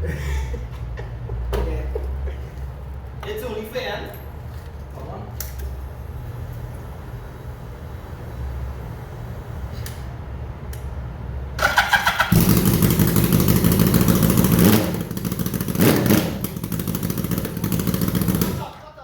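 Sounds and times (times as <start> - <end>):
motorcycle engine cranking: 11.6 - 18.6
motorcycle engine running: 11.6 - 18.7.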